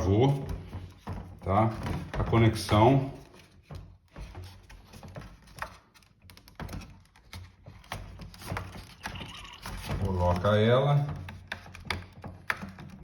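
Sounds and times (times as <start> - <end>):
plastic parts clicking and tapping: 3.4 - 13.0.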